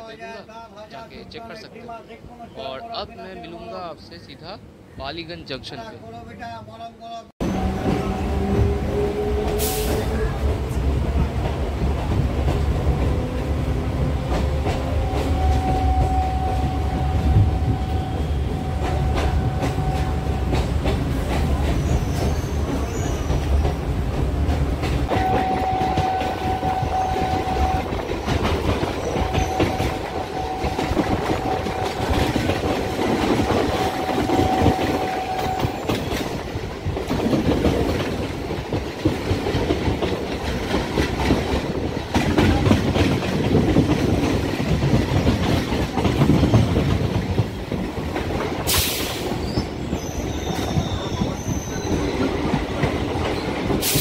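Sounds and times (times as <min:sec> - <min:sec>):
train rumble: 0:07.4 - 0:54.0
train wheels clicking over rail joints: 0:18.7 - 0:54.0.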